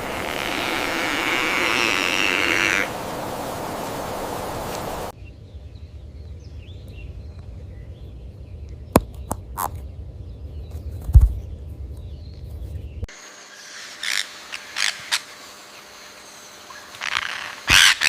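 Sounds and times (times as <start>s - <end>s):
steady hiss: 0.0s - 5.1s, 13.1s - 18.0s
low rumble: 5.1s - 13.1s.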